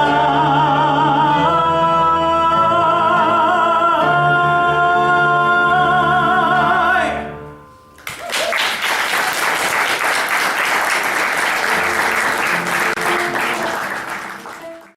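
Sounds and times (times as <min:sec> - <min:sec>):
musical accompaniment: 0:00.0 - 0:14.9
audience applause: 0:08.0 - 0:14.9.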